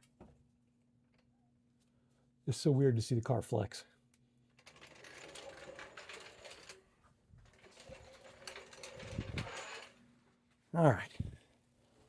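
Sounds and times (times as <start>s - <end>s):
jack clicking and rattling: 4.6s - 6.8s, 7.5s - 10.0s.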